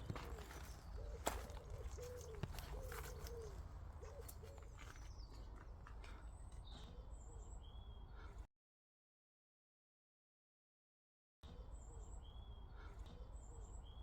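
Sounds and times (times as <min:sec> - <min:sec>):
pigeon cooing: 0:00.0 - 0:04.7.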